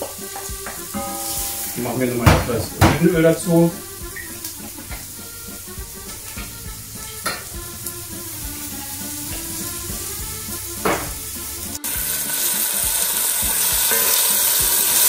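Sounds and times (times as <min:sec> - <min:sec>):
onions sizzling in oil: 0:00.0 - 0:15.0
knocks on pot: 0:10.8 - 0:11.2.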